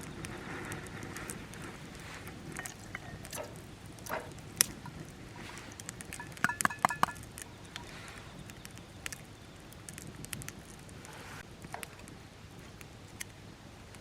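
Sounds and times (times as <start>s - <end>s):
sharp clicks and knocks: 6.1s - 7.5s.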